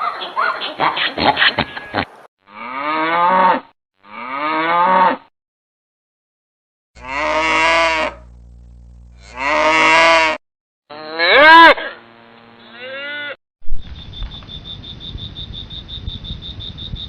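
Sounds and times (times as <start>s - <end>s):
cows mooing: 7.0s - 8.2s, 9.2s - 13.4s.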